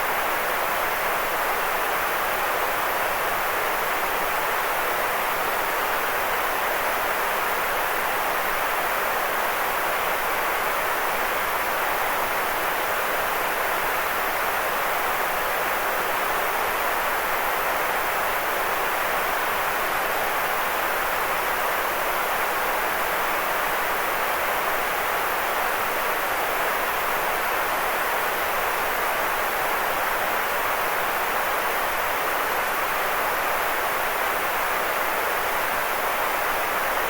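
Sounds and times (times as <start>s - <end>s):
white noise hiss: 0.0s - 37.0s.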